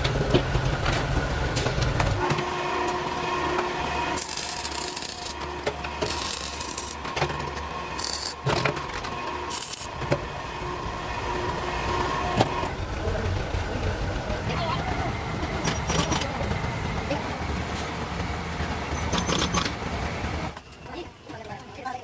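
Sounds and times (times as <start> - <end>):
hand tool filing metal: 4.2 - 5.4, 6.0 - 7.0, 8.0 - 8.4, 9.5 - 9.9.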